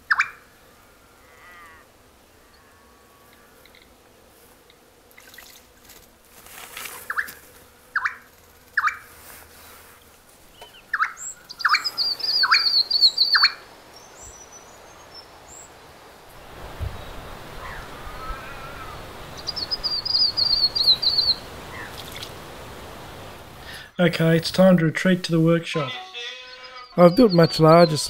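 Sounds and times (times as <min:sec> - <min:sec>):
songbird call notes: 0:00.0 - 0:00.4, 0:10.5 - 0:15.7, 0:16.4 - 0:23.5, 0:25.7 - 0:28.0
rapid high bird trill: 0:08.0 - 0:09.0, 0:10.6 - 0:14.6, 0:17.5 - 0:22.3, 0:25.7 - 0:28.0.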